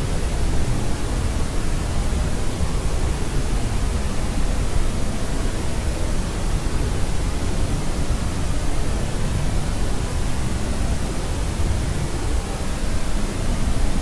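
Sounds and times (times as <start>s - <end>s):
white noise hiss: 0.0s - 14.0s.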